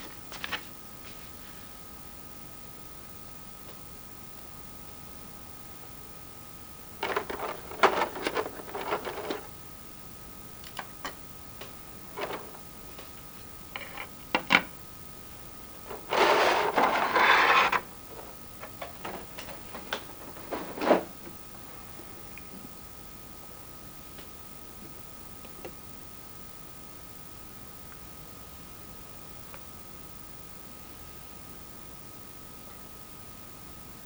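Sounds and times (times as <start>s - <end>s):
packaging rustling: 7.0s - 9.6s, 12.0s - 13.2s, 15.8s - 21.4s.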